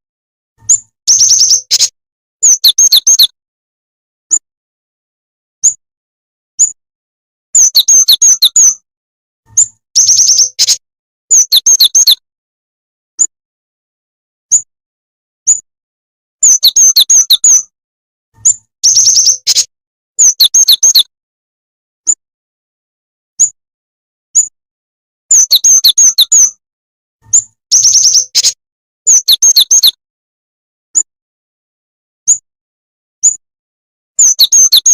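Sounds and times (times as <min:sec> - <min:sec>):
sharp high bird chirps: 0:00.6 - 0:03.4, 0:05.6 - 0:05.8, 0:06.6 - 0:06.8, 0:07.6 - 0:08.8, 0:09.5 - 0:12.2, 0:14.5 - 0:14.7, 0:16.4 - 0:17.7, 0:18.4 - 0:21.1, 0:23.4 - 0:23.6, 0:24.4 - 0:24.6, 0:25.3 - 0:26.6, 0:27.2 - 0:30.0, 0:33.2 - 0:33.4, 0:34.2 - 0:34.9
rapid bursts of bird chirps: 0:00.7 - 0:03.3, 0:07.6 - 0:08.8, 0:09.6 - 0:12.2, 0:16.4 - 0:17.7, 0:18.4 - 0:21.1, 0:25.3 - 0:26.6, 0:27.3 - 0:30.0, 0:34.2 - 0:34.9.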